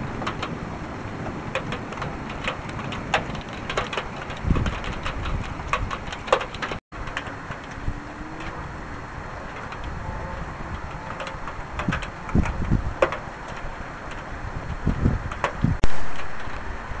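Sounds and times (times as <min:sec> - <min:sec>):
raindrops tapping hard surface: 0:00.0 - 0:16.7
steady rain: 0:00.0 - 0:17.0.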